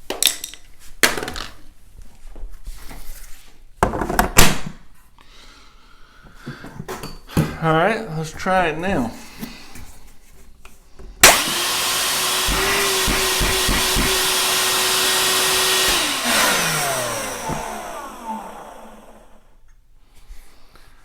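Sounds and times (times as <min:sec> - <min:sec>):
vacuum motor whining: 0:11.2 - 0:19.6.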